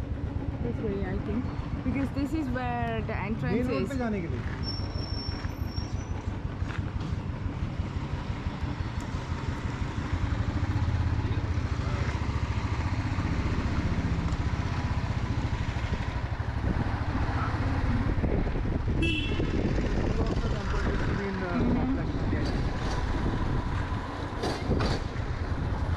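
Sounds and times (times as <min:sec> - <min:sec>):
motorcycle engine running: 0:00.0 - 0:25.9.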